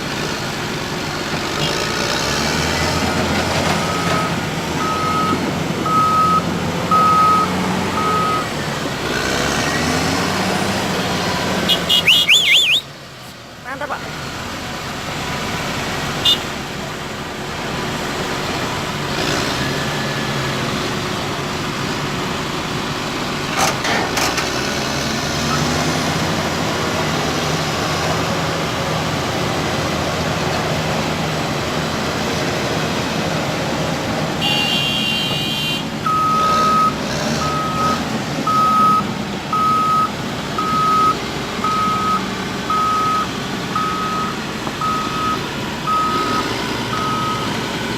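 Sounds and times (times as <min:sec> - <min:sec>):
heavy diesel engines running: 0:00.0 - 0:47.9
reversing alarm beeping: 0:03.8 - 0:08.5, 0:12.0 - 0:12.8, 0:36.0 - 0:47.6.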